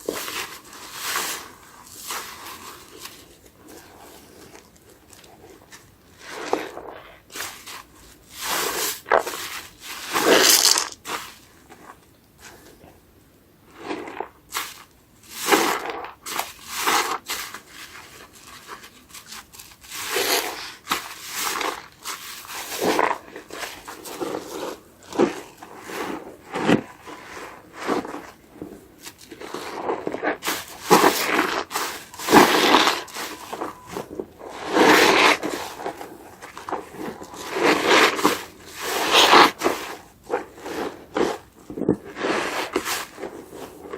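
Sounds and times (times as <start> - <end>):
foamy sponge squeezed and rubbed: 13.7 - 43.9.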